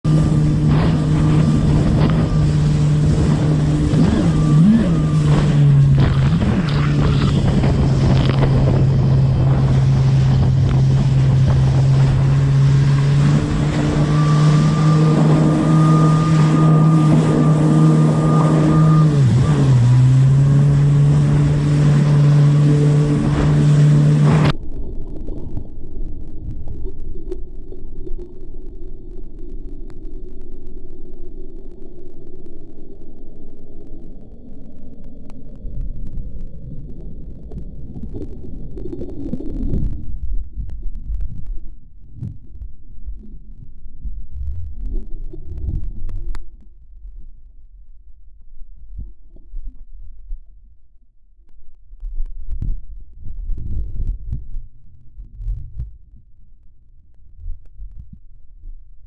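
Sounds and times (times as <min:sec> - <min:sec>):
wind on microphone: 0:00.0 - 0:29.0
quiet muffled rumble: 0:00.0 - 0:59.0
jet ski engine running: 0:00.1 - 0:24.6.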